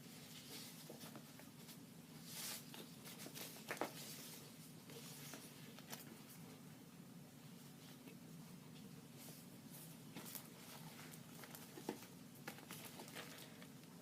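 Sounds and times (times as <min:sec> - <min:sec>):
paper and packaging rustling: 0:10.1 - 0:13.9.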